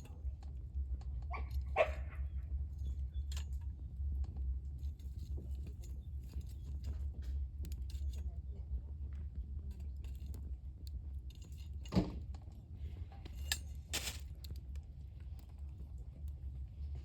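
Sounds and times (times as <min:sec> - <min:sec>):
campfire crackling: 0:09.4 - 0:17.0.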